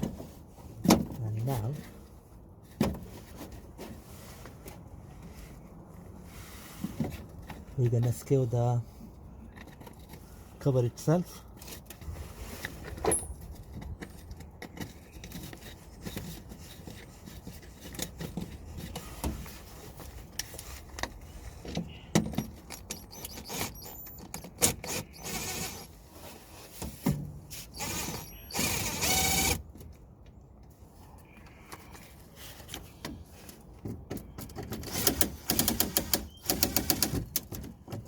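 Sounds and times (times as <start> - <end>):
scraping sounds: 0.0 - 7.7, 11.6 - 21.7, 25.9 - 29.3
screws and cover clicking: 22.1 - 25.9, 27.6 - 29.6, 34.5 - 37.7.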